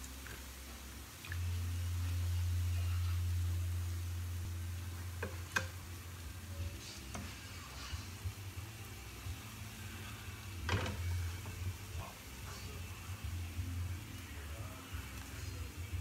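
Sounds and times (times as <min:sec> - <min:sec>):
fritters sizzling in oil: 0:00.0 - 0:16.0
low hum: 0:00.0 - 0:16.0
spoon scraping pan: 0:06.7 - 0:08.3.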